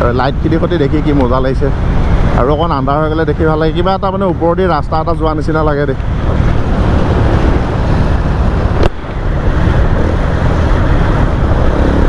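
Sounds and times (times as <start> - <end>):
motorcycle engine and exhaust: 0.0 - 12.0
wind on microphone: 6.0 - 12.0.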